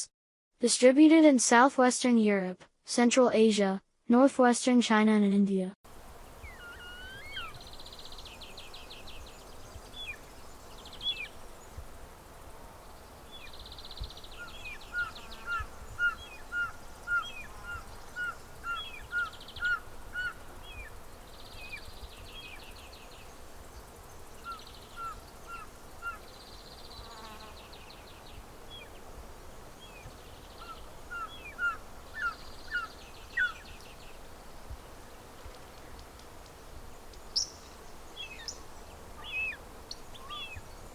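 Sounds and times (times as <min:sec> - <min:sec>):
background hiss: 0:05.9 - 0:40.9
high bird chirps and trills: 0:06.2 - 0:11.8, 0:13.3 - 0:28.9, 0:29.8 - 0:34.2, 0:37.3 - 0:40.9
bird whistling: 0:06.4 - 0:08.6, 0:30.6 - 0:33.6.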